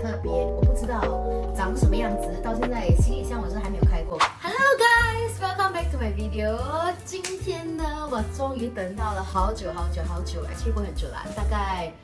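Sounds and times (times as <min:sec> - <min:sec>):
deep bass kicks dropping in pitch: 0:00.0 - 0:04.1
synth music with melody: 0:00.0 - 0:04.2.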